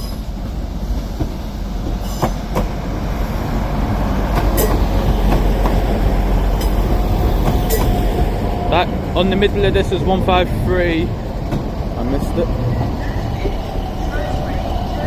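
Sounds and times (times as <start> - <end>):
diesel train rumble: 0.0 - 15.0
wheels clicking over rail joints: 4.3 - 8.5.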